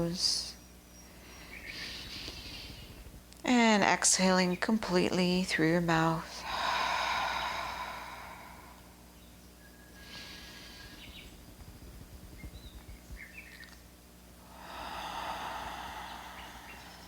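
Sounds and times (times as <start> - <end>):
faint bird chirps: 0.0 - 3.0, 7.2 - 13.9, 15.0 - 17.0
person breathing out: 6.4 - 9.0, 14.5 - 17.0.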